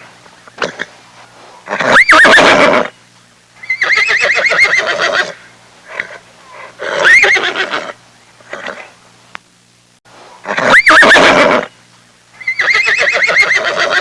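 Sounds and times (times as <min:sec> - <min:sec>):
horse whinnying: 0:01.7 - 0:02.9, 0:03.6 - 0:05.4, 0:06.8 - 0:08.8, 0:10.5 - 0:11.7, 0:12.4 - 0:14.0.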